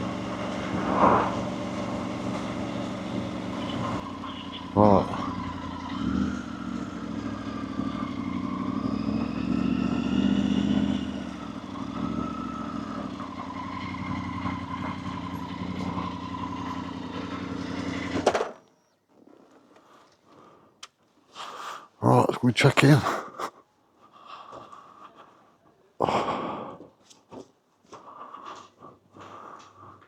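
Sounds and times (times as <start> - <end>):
motorcycle engine running: 0.0 - 18.3.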